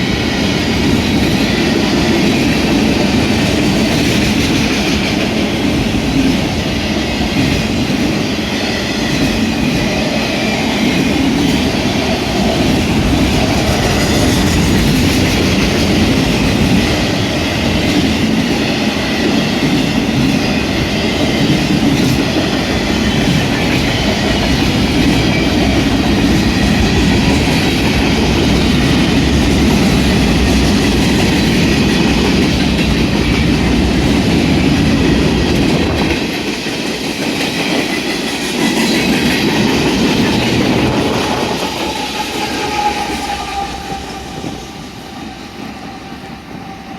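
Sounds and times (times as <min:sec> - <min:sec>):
train wheels rumbling on rail: 0:00.0 - 0:46.9
high wheel squeal: 0:40.6 - 0:46.9.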